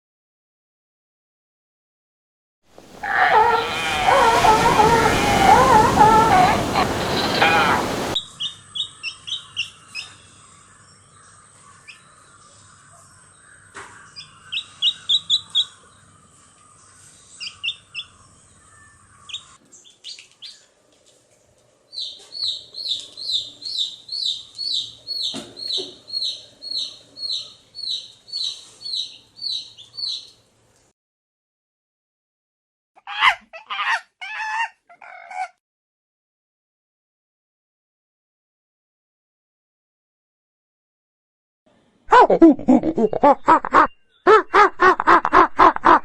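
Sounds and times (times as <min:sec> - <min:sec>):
small birds chirping: 0:02.8 - 0:12.7, 0:16.6 - 0:21.2, 0:21.9 - 0:30.5.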